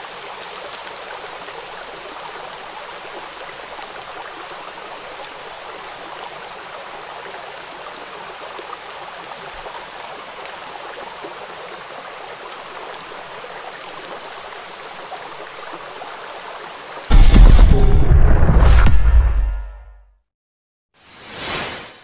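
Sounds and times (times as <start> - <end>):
rain on wet pavement: 0.0 - 17.1.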